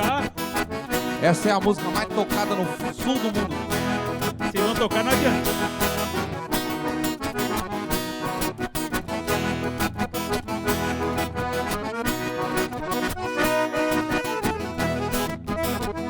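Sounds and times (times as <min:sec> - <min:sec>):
accordion melody: 0:00.0 - 0:16.0
strummed strings: 0:00.0 - 0:16.0.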